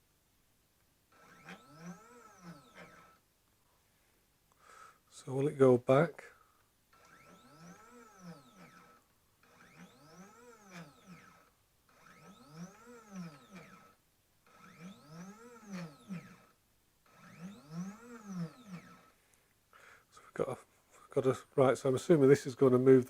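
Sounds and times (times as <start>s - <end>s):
steady high driver tone: 1.1s - 3.3s, 5.1s - 19.4s
stepper motor whine: 1.1s - 3.3s, 6.9s - 19.2s.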